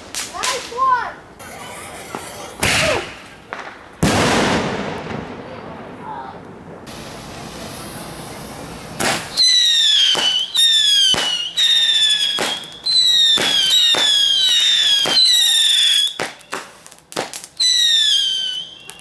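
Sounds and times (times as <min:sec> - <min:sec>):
firework cracks and pops: 0:00.0 - 0:00.9, 0:02.6 - 0:19.0
steady hiss: 0:06.9 - 0:12.8
whistling fireworks: 0:06.9 - 0:19.0.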